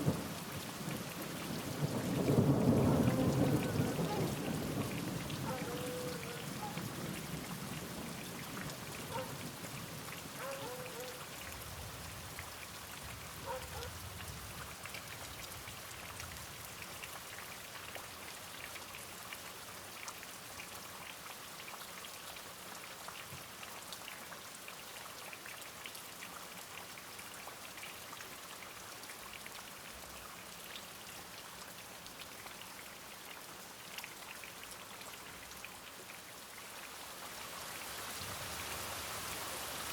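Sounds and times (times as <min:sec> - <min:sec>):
low rumble of thunder: 0:00.0 - 0:09.8
steady rain falling: 0:00.0 - 0:39.9.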